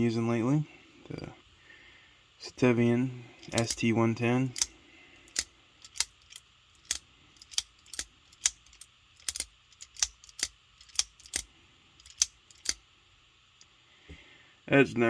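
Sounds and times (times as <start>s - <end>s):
folding knife metallic clicks: 3.4s - 3.8s, 4.5s - 4.7s, 5.3s - 12.8s.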